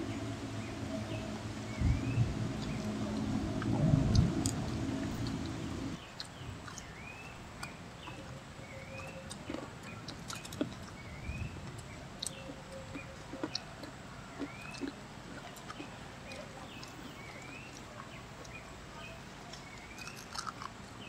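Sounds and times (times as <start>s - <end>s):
low drone: 0.0s - 6.0s
bird chirping: 0.0s - 13.6s
people eating and chewing: 0.0s - 21.0s.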